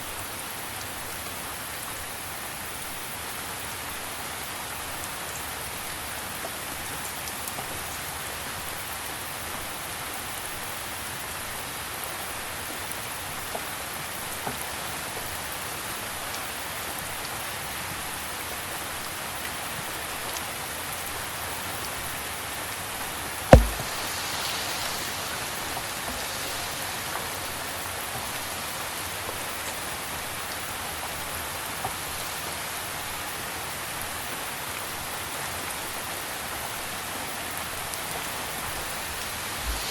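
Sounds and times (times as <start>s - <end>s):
rain falling: 0.0s - 39.9s
sharp knock: 23.5s - 26.2s
drops ticking: 23.6s - 24.2s.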